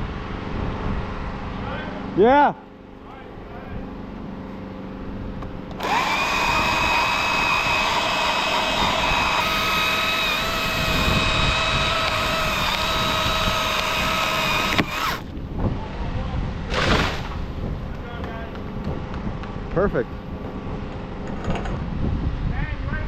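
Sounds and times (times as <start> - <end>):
chainsaw cutting at full throttle: 5.8 - 15.3.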